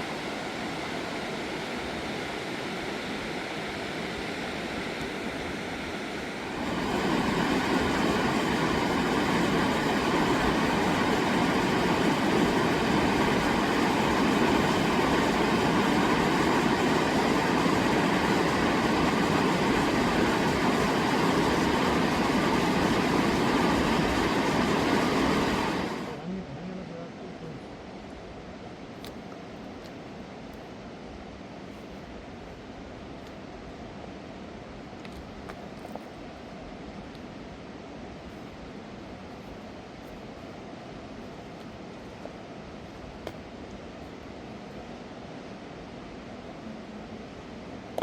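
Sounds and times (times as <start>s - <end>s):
river rushing: 0.0s - 26.3s.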